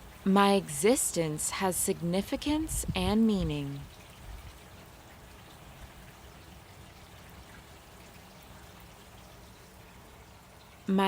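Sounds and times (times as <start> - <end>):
soft rain hiss: 0.0 - 11.0.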